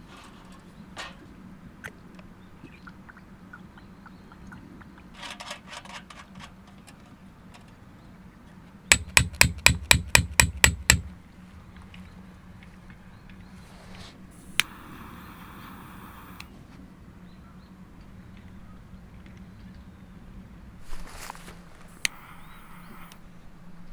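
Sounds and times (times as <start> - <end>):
hammer striking hard: 8.9 - 11.1.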